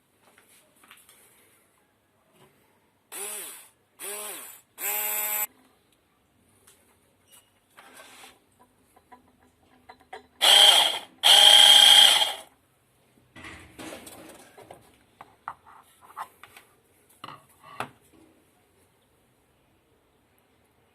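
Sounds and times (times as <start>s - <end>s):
blender motor whine: 3.2s - 5.5s, 10.4s - 12.5s.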